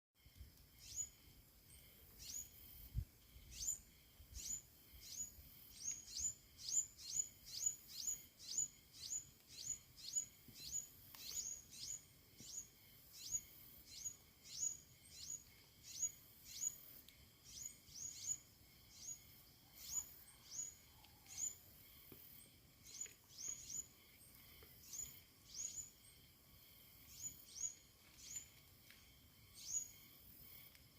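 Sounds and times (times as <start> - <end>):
bird chirping: 0.8 - 1.2, 2.1 - 2.6, 3.4 - 21.6, 22.8 - 23.9, 24.8 - 26.0, 27.1 - 28.5, 29.6 - 30.0.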